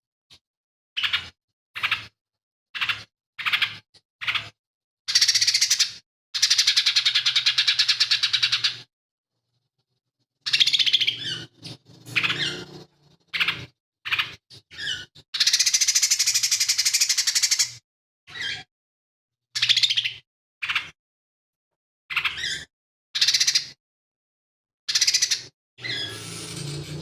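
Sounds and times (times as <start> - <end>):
bird song with mimicked calls: 1.0 - 2.2, 2.8 - 8.9, 10.4 - 18.7, 19.6 - 21.0, 22.1 - 23.8, 24.9 - 26.3
fast rattling bird chatter: 10.5 - 17.7.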